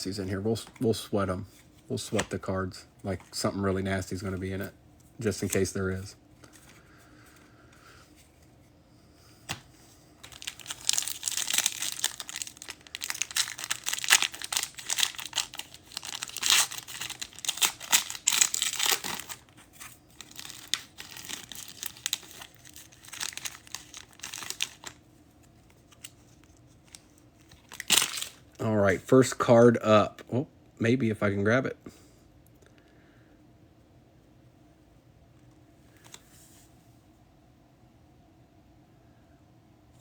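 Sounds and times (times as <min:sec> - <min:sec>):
cards rustling: 0:00.2 - 0:07.5, 0:09.4 - 0:28.6
card pack wrapper crinkling and tearing: 0:10.2 - 0:25.0, 0:25.6 - 0:28.6.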